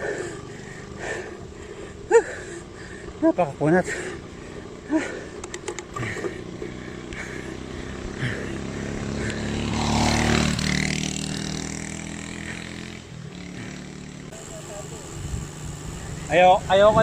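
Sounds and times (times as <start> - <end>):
vehicle engine passing by: 6.0 - 17.0.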